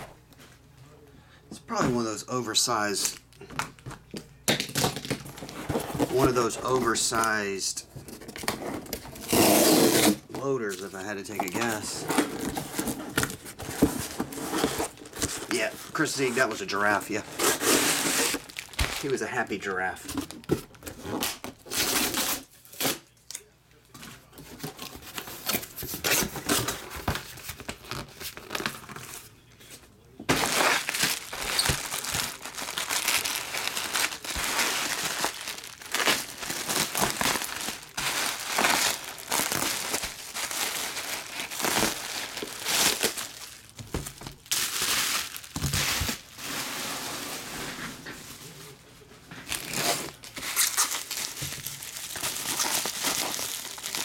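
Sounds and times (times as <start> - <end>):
plastic packaging crinkling: 4.9 - 22.8, 30.0 - 47.4, 49.4 - 54.0.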